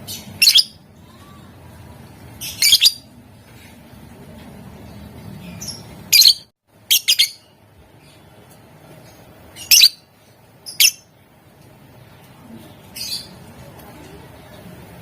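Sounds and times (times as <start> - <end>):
low background hum: 0.0 - 15.0
lovebird shrill chirps: 0.4 - 0.8, 2.4 - 3.0, 5.6 - 7.5, 9.6 - 10.1, 10.7 - 11.1.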